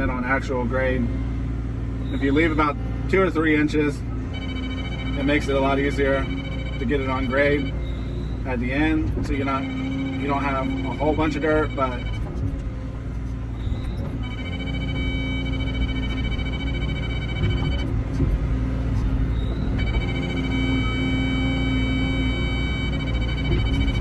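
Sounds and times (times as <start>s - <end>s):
excavator diesel engine digging: 0.0s - 24.0s
high electronic ringing tone: 4.2s - 12.3s, 13.6s - 18.0s, 19.3s - 24.0s.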